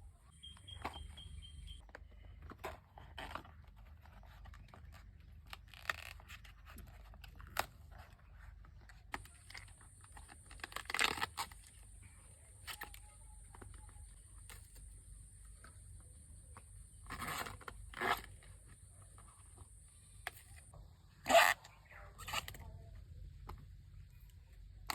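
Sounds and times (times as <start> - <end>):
tearing and crunching handling sounds: 1.8 - 14.9.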